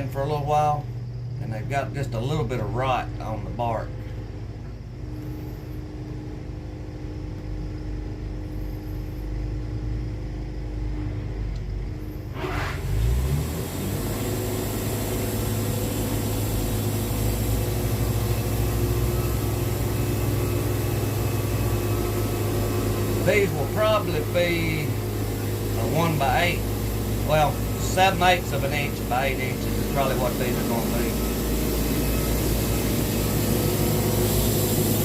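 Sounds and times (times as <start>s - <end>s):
sawmill engine humming: 0.0s - 35.0s
saw cutting a log with hiss: 12.4s - 35.0s.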